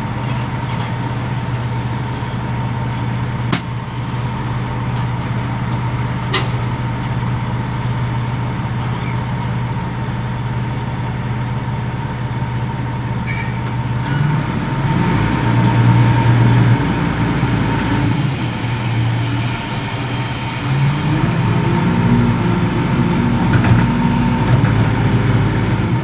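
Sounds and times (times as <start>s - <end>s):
diesel engine revving: 13.2s - 26.0s.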